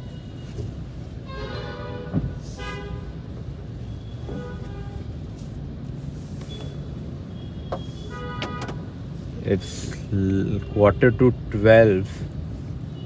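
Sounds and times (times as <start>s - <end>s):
low car cabin rumble: 0.0s - 10.4s
car horns honking: 1.2s - 3.3s, 4.0s - 5.1s, 7.4s - 9.0s.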